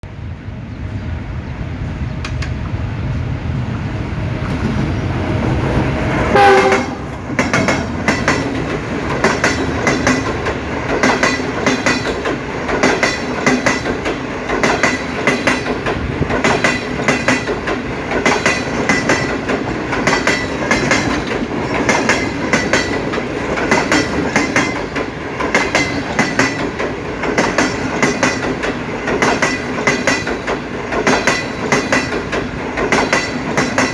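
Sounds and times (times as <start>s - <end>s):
train wheels clickety-clack: 3.7s - 33.9s
train horn blast: 6.3s - 7.3s.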